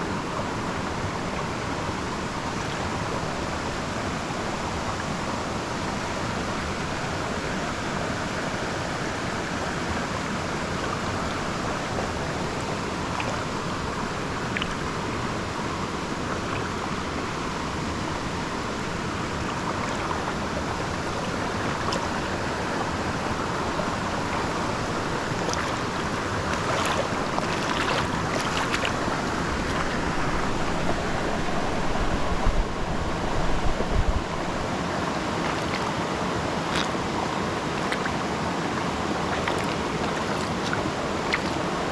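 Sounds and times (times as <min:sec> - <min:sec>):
river water rushing: 0:00.0 - 0:41.9
wind rumble on microphone: 0:06.4 - 0:36.6.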